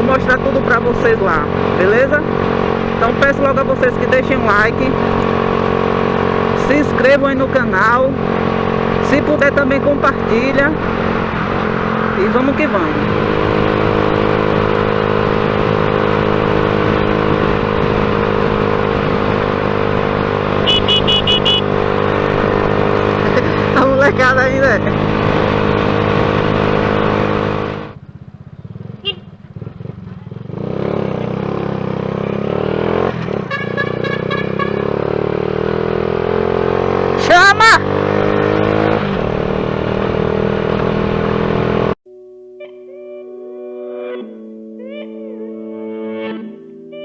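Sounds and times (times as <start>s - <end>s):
motorcycle engine running steadily: 12.7s - 35.8s.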